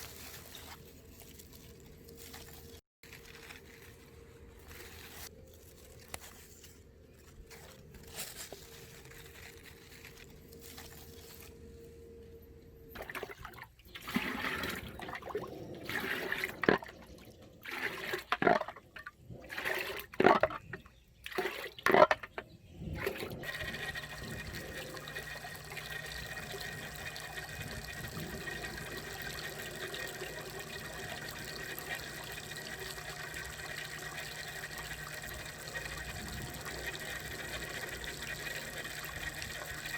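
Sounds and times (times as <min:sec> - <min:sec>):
running water rushing: 0:23.0 - 0:39.9.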